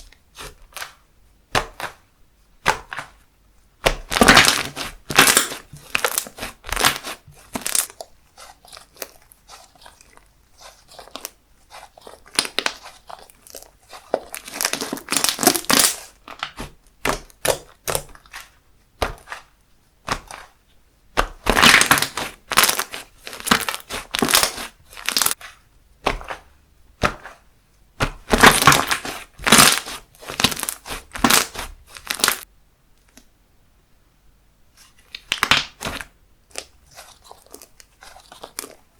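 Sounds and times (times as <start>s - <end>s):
slime crackling and popping: 3.8s - 19.5s, 21.2s - 26.4s, 28.0s - 32.5s, 35.1s - 38.8s.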